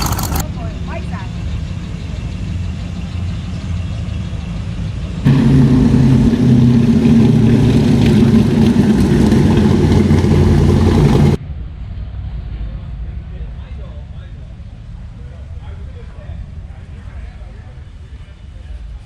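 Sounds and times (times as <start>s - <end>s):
car engine idling: 0.0s - 0.4s, 5.0s - 11.4s
loud deep engine: 0.0s - 11.4s.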